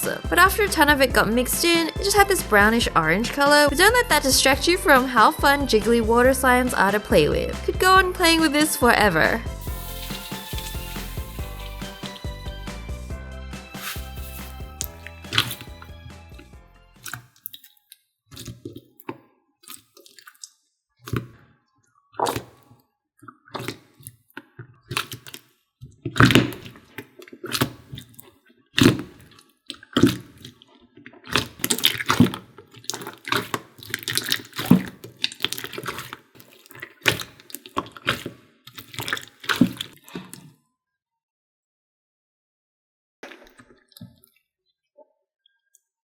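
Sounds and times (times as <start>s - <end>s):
wet slime squelches: 8.2s - 13.0s, 13.6s - 40.6s.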